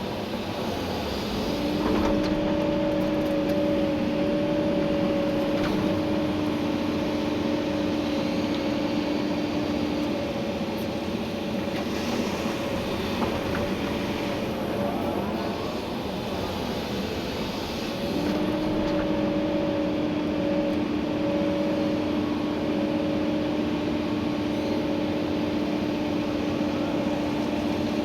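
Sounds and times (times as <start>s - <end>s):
excavator diesel engine running: 0.0s - 28.0s
two-tone whine: 18.1s - 25.3s.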